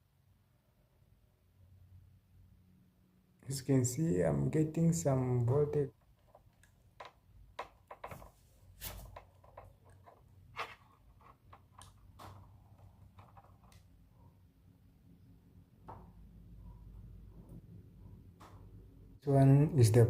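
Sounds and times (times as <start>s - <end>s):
faint clicks and taps: 5.9s - 14.4s.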